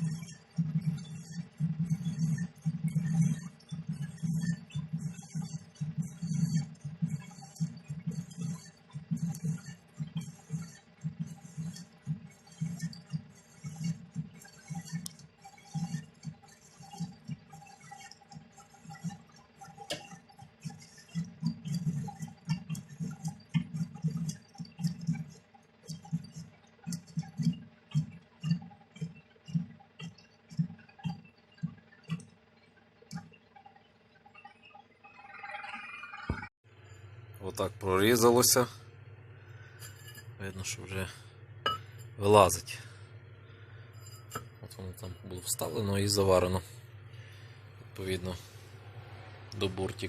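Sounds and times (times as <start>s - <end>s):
lathe tool cutting steel: 0.0s - 29.1s.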